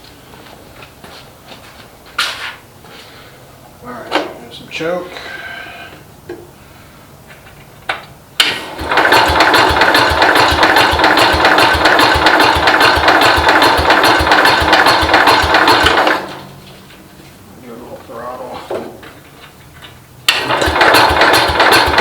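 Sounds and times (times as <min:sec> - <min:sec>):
engine cranking without starting: 0:08.4 - 0:16.6, 0:20.3 - 0:22.0.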